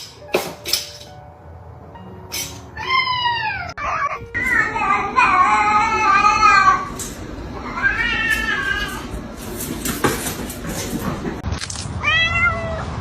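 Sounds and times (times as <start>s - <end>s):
cat meowing: 2.8s - 7.0s, 7.6s - 9.1s, 12.0s - 13.0s.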